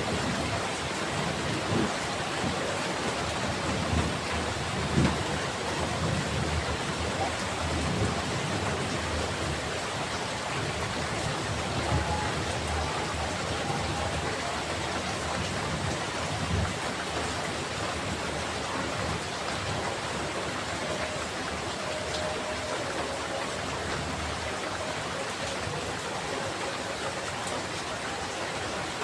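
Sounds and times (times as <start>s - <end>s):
thunder rumbling: 0.0s - 20.9s
heavy rain pouring: 0.0s - 29.0s.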